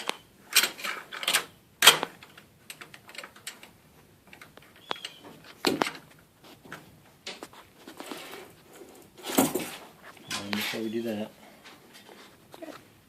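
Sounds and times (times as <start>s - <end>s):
metal door hardware clicking: 0.0s - 6.1s.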